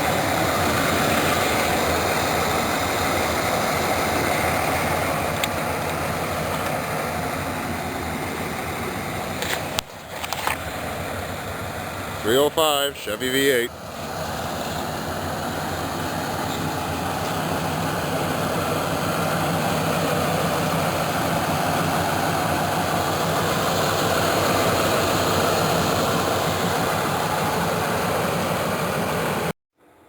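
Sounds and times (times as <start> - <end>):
car engine running: 0.0 - 29.5.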